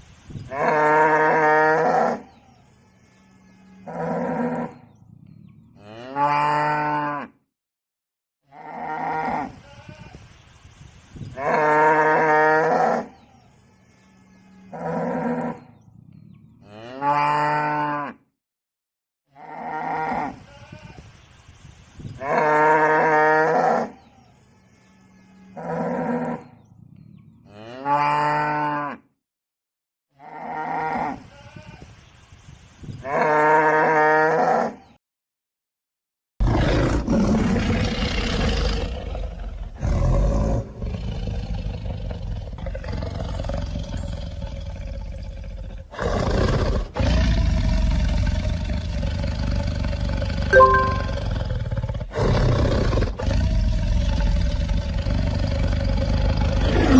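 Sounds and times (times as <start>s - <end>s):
rough noisy animal call: 51.2s - 56.9s.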